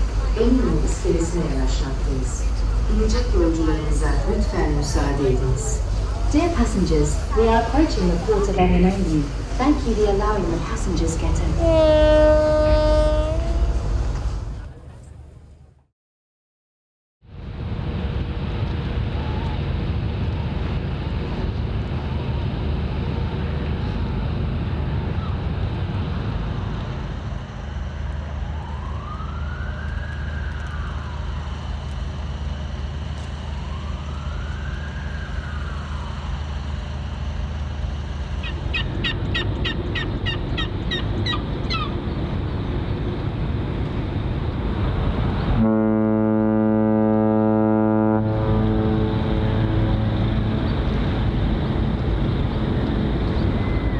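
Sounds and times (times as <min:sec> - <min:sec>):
ship's horn blast: 0:00.0 - 0:14.8, 0:38.6 - 0:53.9
low engine drone: 0:00.0 - 0:15.6, 0:17.3 - 0:53.9.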